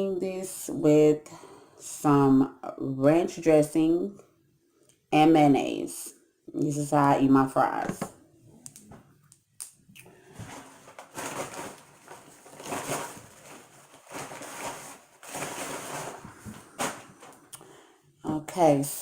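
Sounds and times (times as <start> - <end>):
paper food packaging rustling: 10.3 - 17.5.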